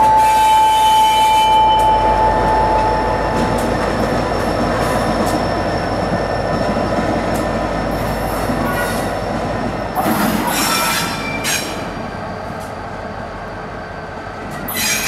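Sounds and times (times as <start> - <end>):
rumble of train wheels: 0.0 - 15.0
diesel locomotive engine running: 0.7 - 15.0
high-pitched wheel squeal: 10.4 - 12.5, 14.7 - 15.0.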